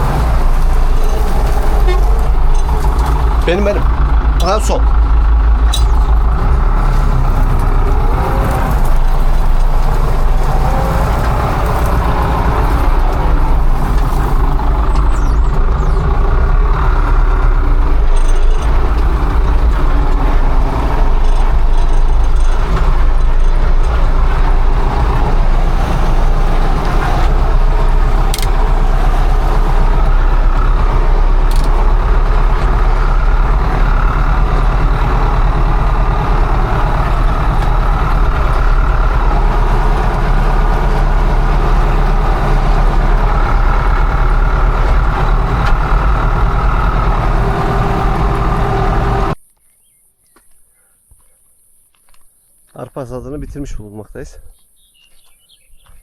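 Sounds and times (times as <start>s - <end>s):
combine harvester engine running: 0.0s - 49.4s.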